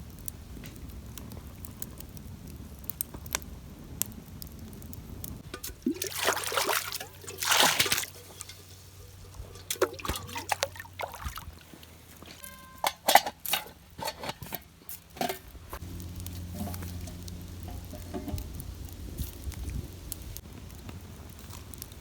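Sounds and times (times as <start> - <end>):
metal pot knocks and clinks: 5.4 - 11.2, 12.2 - 15.6, 16.5 - 18.6
water sloshing and pouring: 5.4 - 14.6
metallic ring: 12.3 - 14.6.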